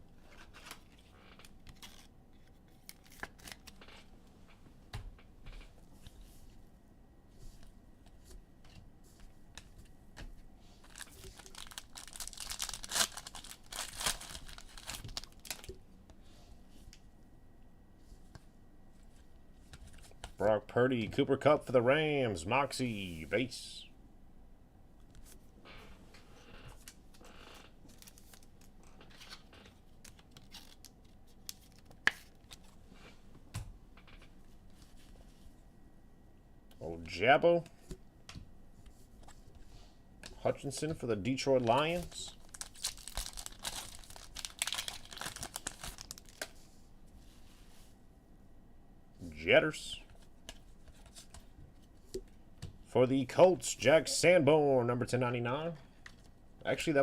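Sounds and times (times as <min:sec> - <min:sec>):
foil wrapper tearing and crinkling: 0:10.8 - 0:15.7, 0:42.0 - 0:46.5.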